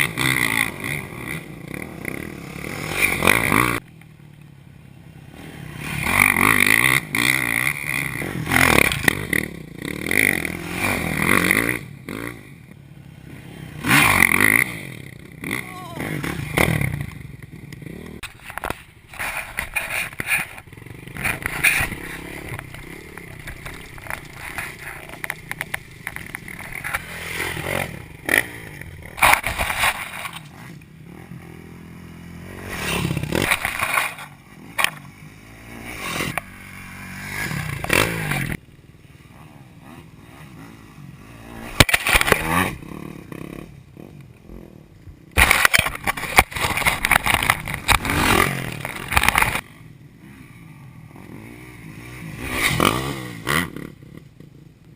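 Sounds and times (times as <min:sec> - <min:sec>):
dirt bike engine revving: 0:00.0 - 0:03.9, 0:05.0 - 0:54.7
scraping and rattling: 0:18.2 - 0:28.0.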